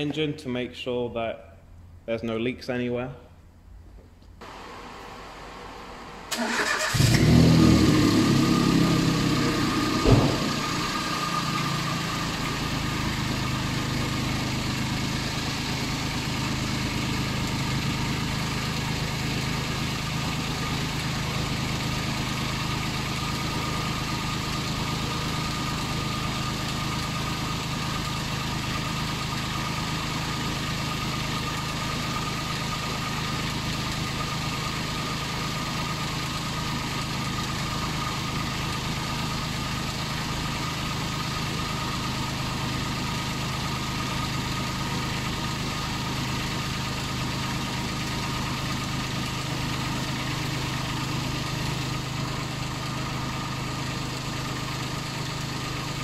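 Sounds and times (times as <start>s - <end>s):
car engine idling: 4.4s - 56.0s.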